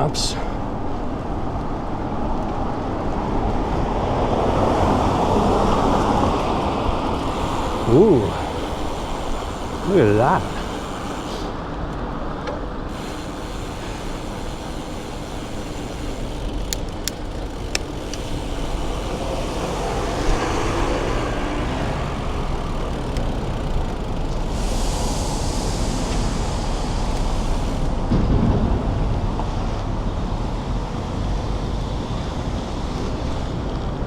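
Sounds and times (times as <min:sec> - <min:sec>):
traffic rumble: 0:00.0 - 0:34.0
tyres and air hissing: 0:06.8 - 0:28.3.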